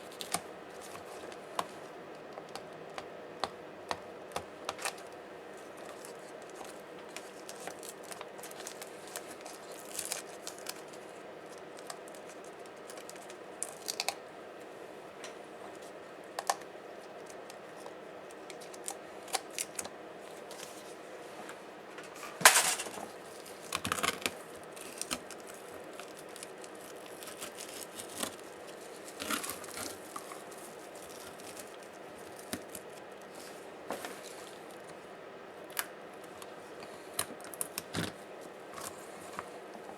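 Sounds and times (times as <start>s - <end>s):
plastic parts clicking and crackling: 0.1s - 5.1s, 5.8s - 14.2s, 23.6s - 33.0s.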